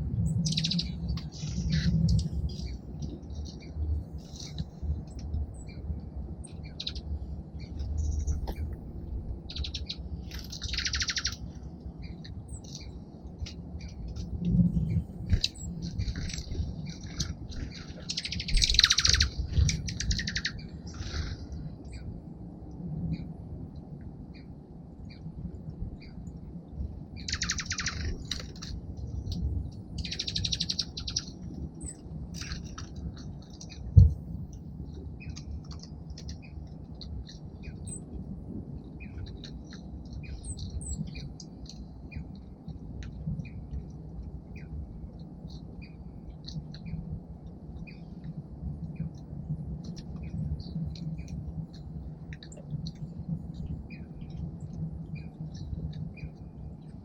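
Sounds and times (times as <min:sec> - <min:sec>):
low background rumble: 0:00.0 - 0:57.0
songbirds chirping: 0:00.0 - 0:57.0
buzzy bird trill: 0:00.3 - 0:02.7, 0:09.5 - 0:11.4, 0:18.0 - 0:21.2, 0:27.2 - 0:28.6.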